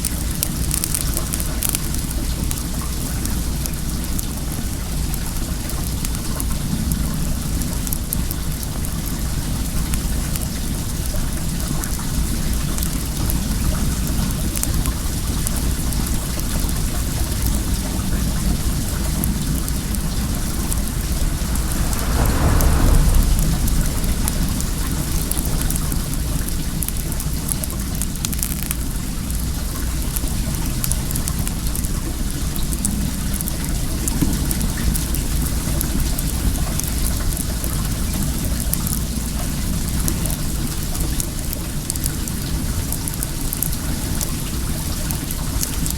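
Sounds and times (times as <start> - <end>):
bonfire crackling: 19.0 - 29.0
flowing water rushing: 19.6 - 27.0.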